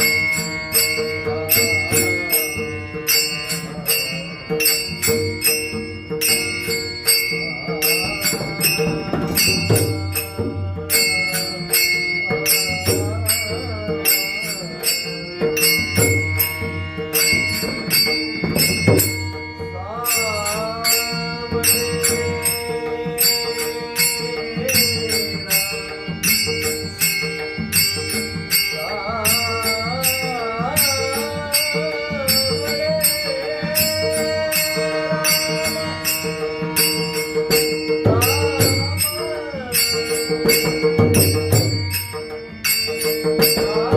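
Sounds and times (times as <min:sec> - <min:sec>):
held drone tones: 0:00.0 - 0:43.9
small hand cymbals jingling: 0:00.0 - 0:43.9
man singing devotional phrases: 0:12.7 - 0:15.9, 0:19.6 - 0:26.3, 0:28.7 - 0:41.3, 0:43.4 - 0:43.9.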